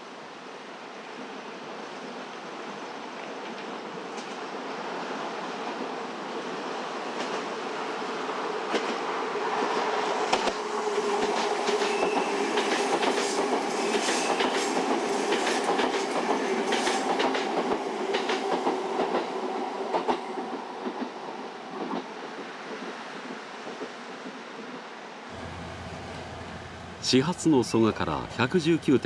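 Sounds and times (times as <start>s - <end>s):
train running past: 2.6s - 29.0s
wheels clacking on rail joints: 10.3s - 21.1s.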